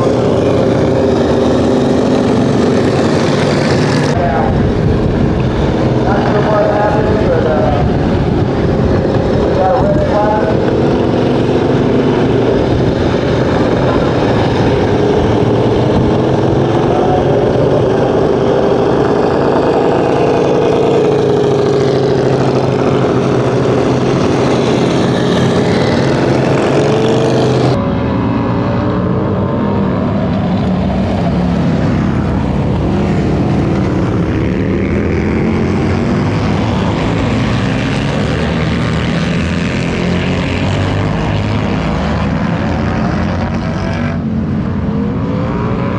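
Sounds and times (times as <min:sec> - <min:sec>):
motorcycle engines revving: 0:00.0 - 0:45.9.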